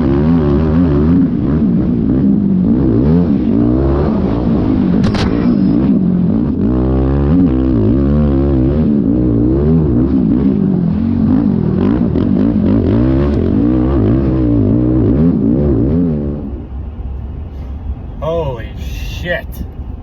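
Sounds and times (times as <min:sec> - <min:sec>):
atv engine revving: 0:06.6 - 0:16.4.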